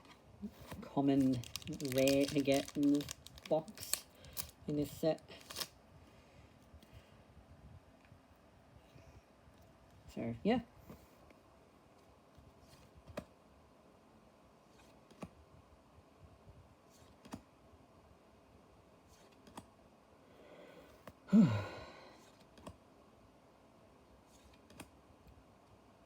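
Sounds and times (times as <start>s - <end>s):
wrapper rustle: 0.8s - 5.7s
person sighing: 20.6s - 22.2s.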